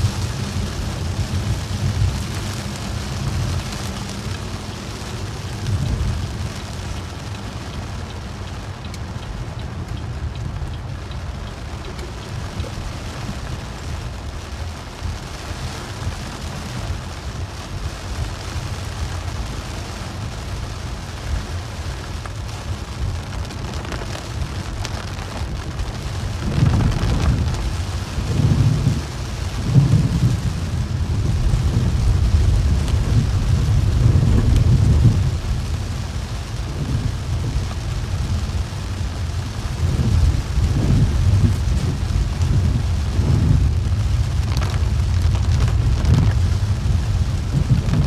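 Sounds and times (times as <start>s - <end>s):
deep rolling rumble: 0.0s - 48.0s
heavy rain on a car: 0.0s - 48.0s
steady low rumble: 0.0s - 48.0s.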